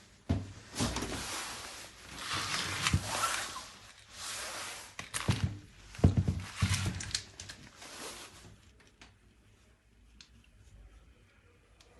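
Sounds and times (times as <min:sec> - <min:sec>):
rustling and scraping: 0:00.4 - 0:09.0.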